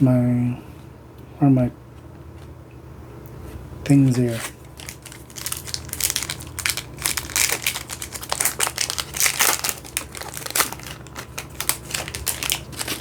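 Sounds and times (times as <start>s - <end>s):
plastic wrapper crinkling: 4.2s - 13.0s.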